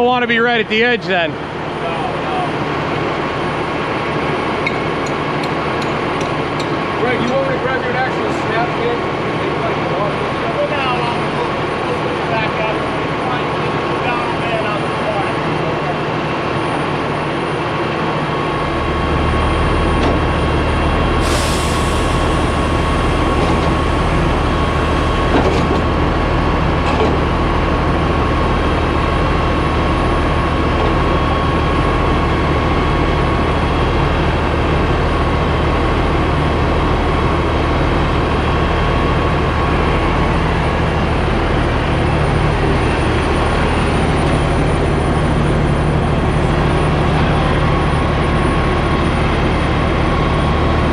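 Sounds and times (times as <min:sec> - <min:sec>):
diesel engine idling: 0:00.0 - 0:50.9
heavy machinery running: 0:00.0 - 0:50.9
short hiss: 0:21.2 - 0:23.9.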